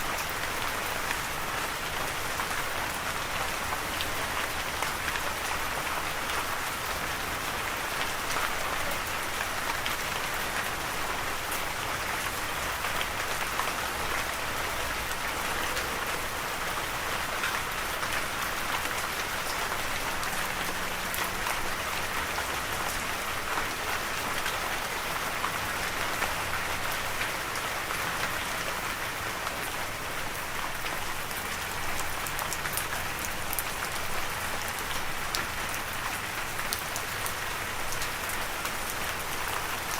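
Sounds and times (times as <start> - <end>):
rain pattering on a surface: 0.0 - 39.9.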